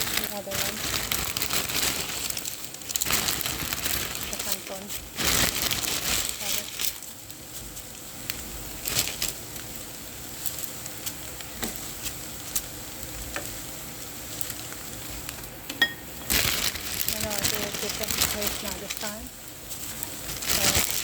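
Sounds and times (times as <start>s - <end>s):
food sizzling in a pan: 1.9s - 21.0s.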